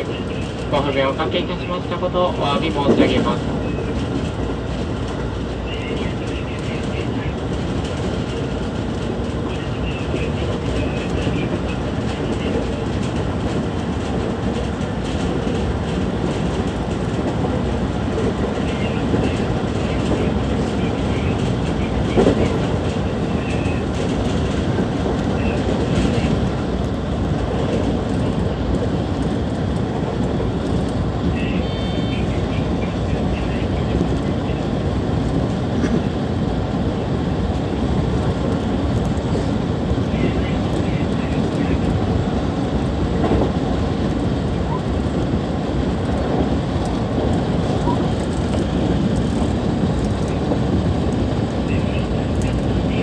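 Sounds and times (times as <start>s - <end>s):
clickety-clack over rail joints: 0.0s - 53.0s
train wheels rumbling on rail: 0.0s - 53.0s.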